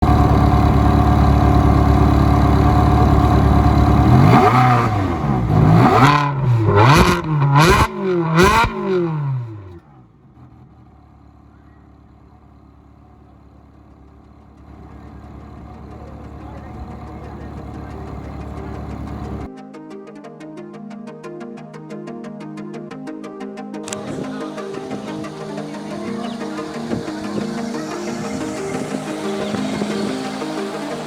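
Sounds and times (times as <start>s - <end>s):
car engine revving: 0.0s - 19.5s, 23.9s - 31.0s.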